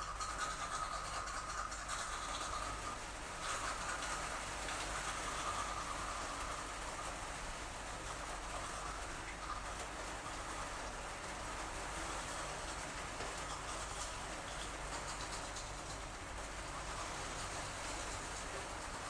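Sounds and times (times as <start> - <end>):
steady rain falling: 0.0 - 19.0.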